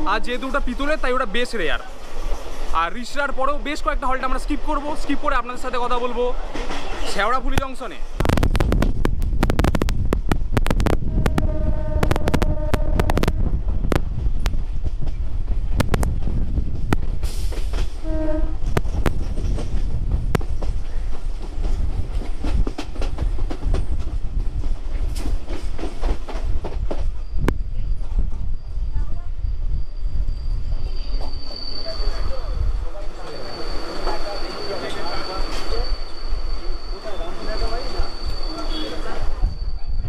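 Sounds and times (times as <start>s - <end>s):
train wheels clattering over rails: 6.4s - 9.2s, 14.2s - 27.3s
train horn: 11.0s - 13.5s, 18.0s - 18.7s, 38.5s - 39.3s.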